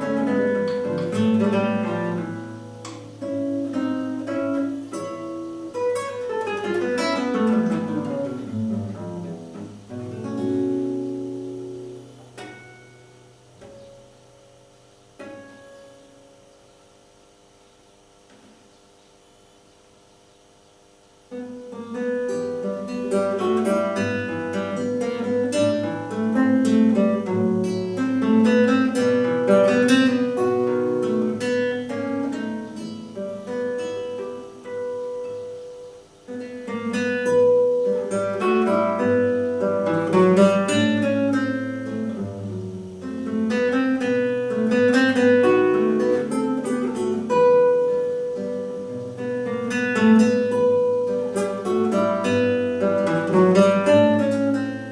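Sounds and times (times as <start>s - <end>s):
solo classical guitar: 0.0s - 19.1s, 20.3s - 54.9s.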